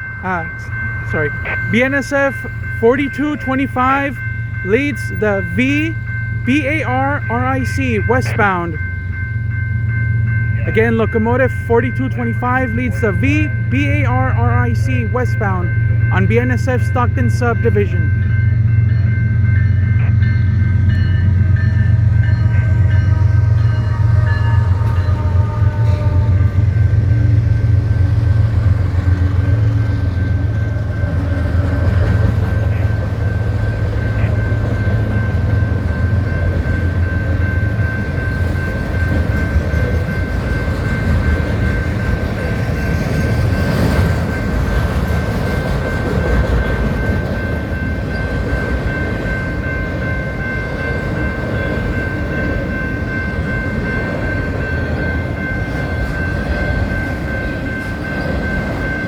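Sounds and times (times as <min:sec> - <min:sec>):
thin high tone: 0:00.0 - 0:20.4
diesel locomotive rumble: 0:00.0 - 0:59.0.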